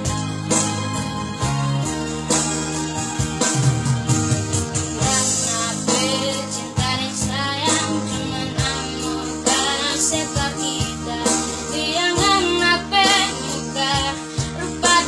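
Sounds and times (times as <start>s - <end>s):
instrumental backing: 0.0s - 15.0s
child singing: 5.0s - 15.0s.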